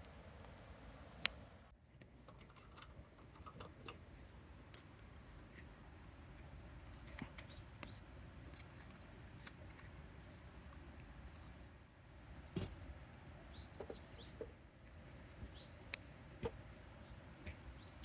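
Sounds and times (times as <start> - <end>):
faint clicks and ticks: 0.0 - 4.1, 6.3 - 11.7
low background hum: 0.0 - 18.0
bird chirps: 12.6 - 14.5.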